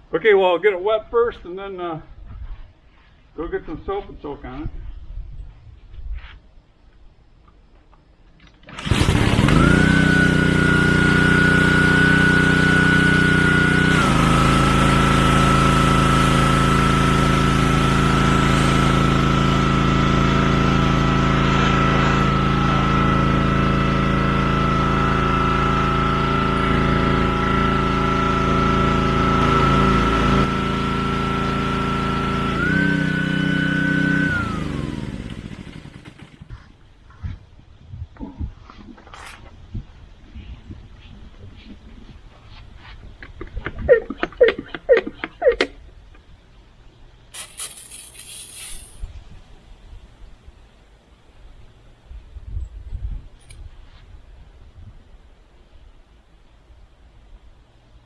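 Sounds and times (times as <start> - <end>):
pressure washer whining: 8.7 - 36.5, 47.4 - 49.1.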